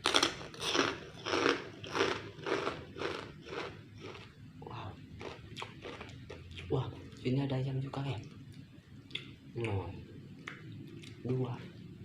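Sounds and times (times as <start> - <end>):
person chewing food: 0.0 - 4.4, 5.2 - 7.2, 10.4 - 11.4.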